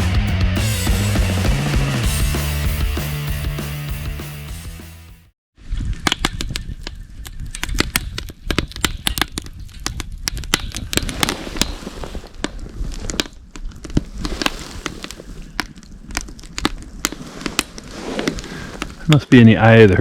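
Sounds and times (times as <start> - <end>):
campfire crackling and popping: 6.0 - 19.2.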